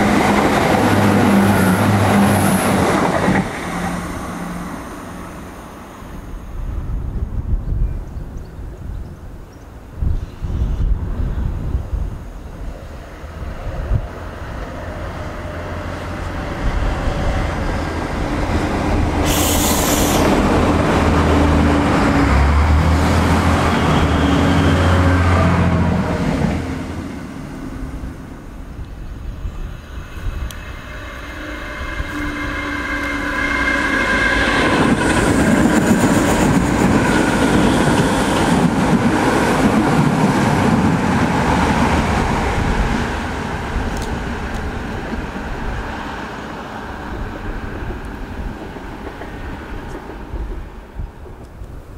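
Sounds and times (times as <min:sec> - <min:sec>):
train passing with deep drone: 0:00.0 - 0:51.9
train rumbling past: 0:00.0 - 0:51.9
electric train whine: 0:12.2 - 0:51.9.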